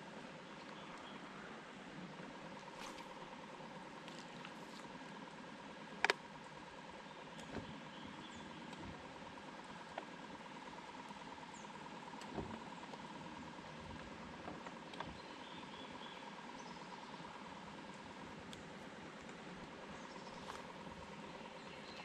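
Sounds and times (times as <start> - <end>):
faint steady hum: 0.0 - 22.0
faint high bird chirps: 7.1 - 8.7, 15.1 - 17.3.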